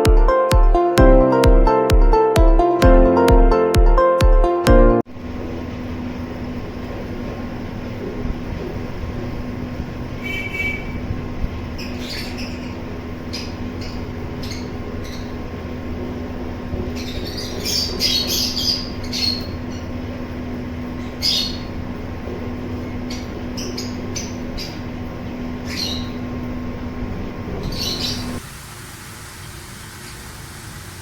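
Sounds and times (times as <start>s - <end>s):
steady low hum: 5.0s - 28.5s
small birds chirping and squawking: 11.7s - 15.5s, 16.8s - 26.5s, 27.5s - 28.4s.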